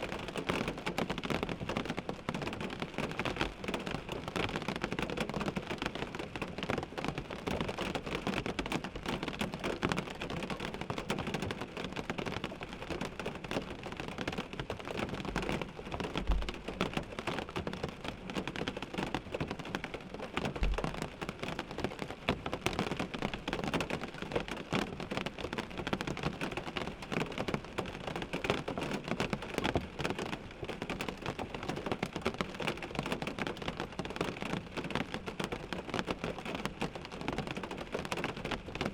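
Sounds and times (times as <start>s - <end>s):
rain on car windshield: 0.0s - 38.9s.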